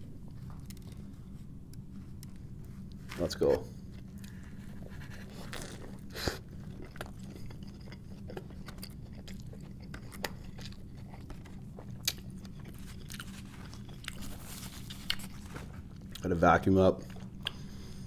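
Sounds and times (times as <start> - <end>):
steady low hum: 0.0 - 18.0
wet chewing with crunches: 3.8 - 16.4, 17.0 - 18.0.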